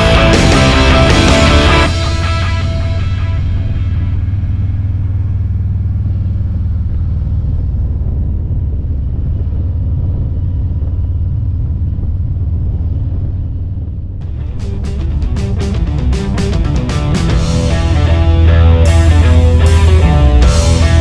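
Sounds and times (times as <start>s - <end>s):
rock music with a beat: 0.0s - 4.3s, 14.2s - 21.0s
motorcycle riding at speed: 0.0s - 21.0s
wind noise: 0.0s - 21.0s.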